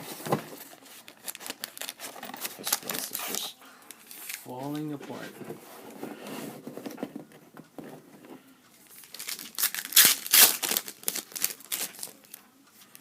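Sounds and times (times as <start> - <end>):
wrapper crinkling and tearing: 0.9 - 3.5, 9.0 - 12.4.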